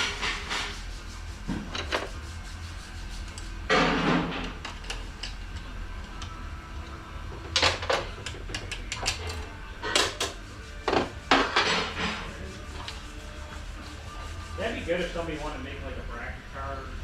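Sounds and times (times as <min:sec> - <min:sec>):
steady low hum: 0:00.0 - 0:17.0
metal parts clinking and clattering: 0:07.4 - 0:10.4.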